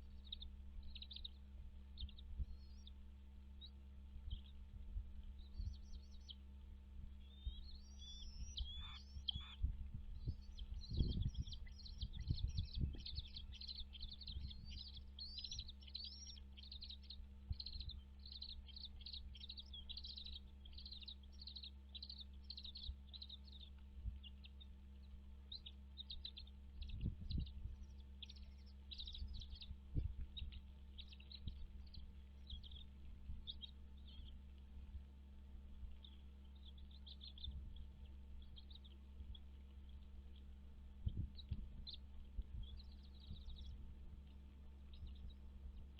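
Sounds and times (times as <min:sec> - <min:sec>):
steady low hum: 0:00.0 - 0:45.9
eagle chirping calls: 0:07.2 - 0:24.6.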